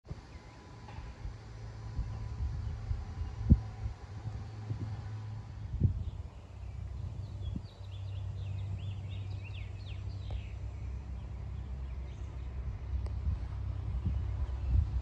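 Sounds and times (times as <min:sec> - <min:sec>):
wind rumble on microphone: 0:00.1 - 0:15.0
small bird chirping: 0:05.9 - 0:12.6.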